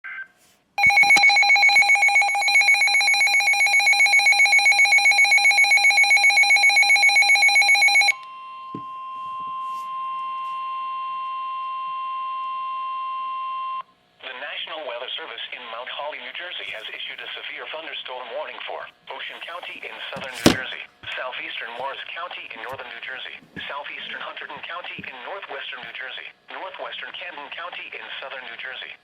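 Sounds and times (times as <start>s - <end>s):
steady warning alarm tone: 0.8s - 13.8s.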